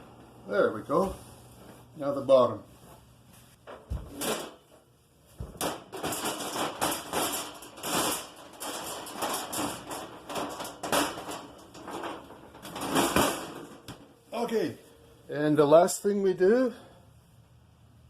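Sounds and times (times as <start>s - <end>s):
sheet metal parts clattering: 3.7s - 4.8s, 5.4s - 14.1s.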